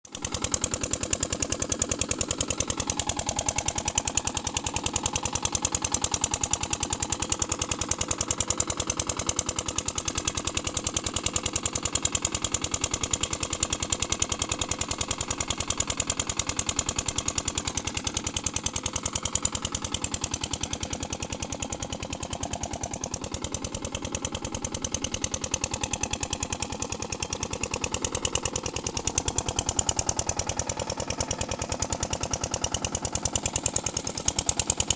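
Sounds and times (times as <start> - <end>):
diesel engine chugging: 13.7 - 34.9.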